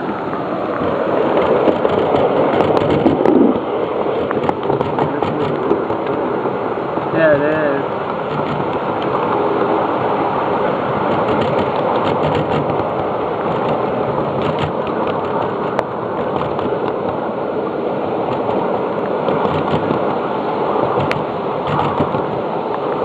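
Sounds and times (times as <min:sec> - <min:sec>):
ride-on train wheels rumbling: 0:00.0 - 0:23.0
sharp clicks and clacks: 0:01.4 - 0:03.4, 0:04.2 - 0:06.2, 0:08.3 - 0:09.1, 0:11.1 - 0:13.8, 0:14.4 - 0:17.2, 0:19.3 - 0:20.0, 0:21.0 - 0:22.3.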